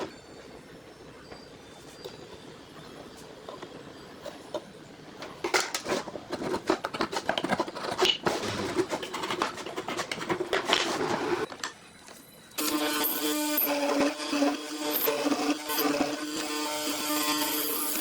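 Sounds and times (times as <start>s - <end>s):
rapid scratching and scraping: 5.8s - 11.5s.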